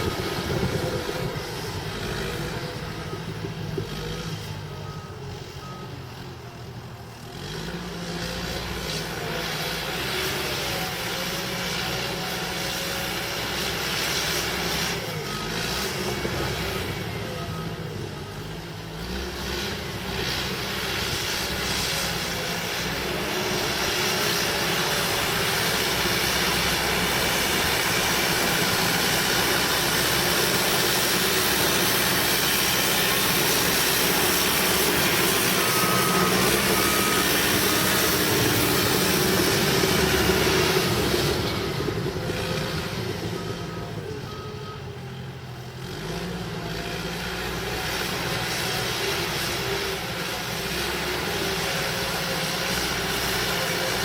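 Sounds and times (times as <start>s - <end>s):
bulldozer diesel engine under load: 0.0s - 54.0s
short beeps: 32.4s - 40.7s, 42.3s - 45.2s.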